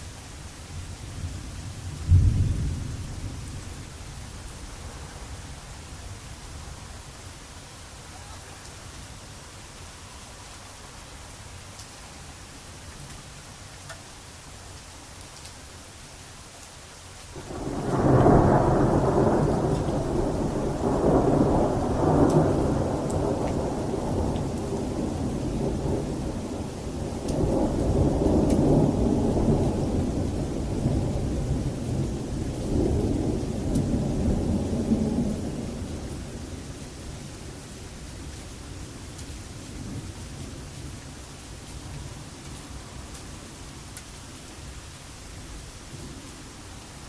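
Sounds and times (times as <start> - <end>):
steady rain: 0.0 - 47.0
thunder rumbling: 1.2 - 3.8, 17.4 - 37.4.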